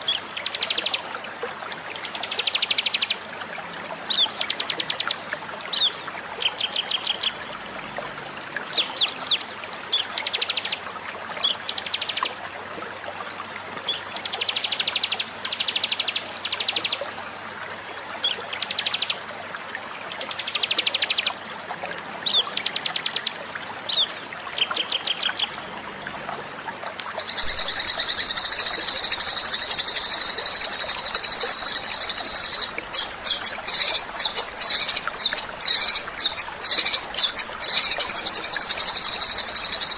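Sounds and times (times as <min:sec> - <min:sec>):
songbird trills and chirps: 0:27.2 - 0:39.9.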